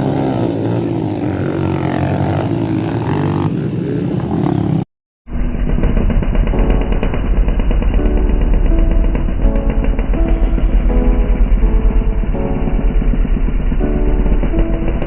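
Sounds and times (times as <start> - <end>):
motocross bike engine running: 0.0 - 15.0
background music: 6.4 - 15.0.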